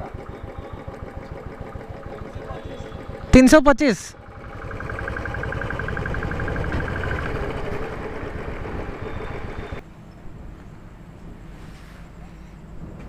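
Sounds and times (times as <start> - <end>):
fast ticking: 0.0 - 9.8
vehicle engine running: 0.0 - 9.8.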